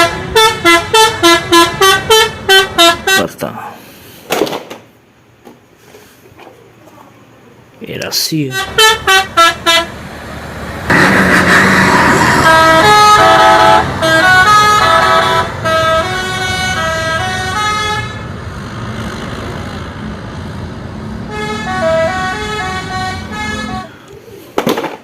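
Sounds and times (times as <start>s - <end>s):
musical vehicle horn tune: 0.0s - 3.3s, 8.5s - 10.0s, 10.9s - 18.2s, 21.3s - 24.0s.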